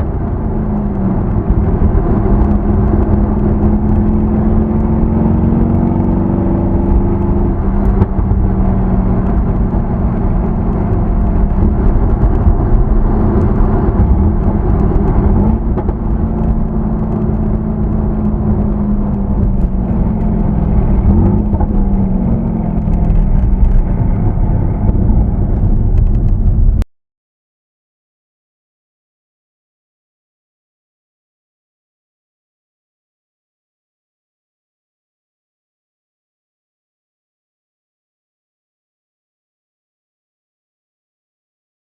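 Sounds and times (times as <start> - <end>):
car engine while driving: 0.0 - 26.8
road noise rumble: 0.0 - 26.9.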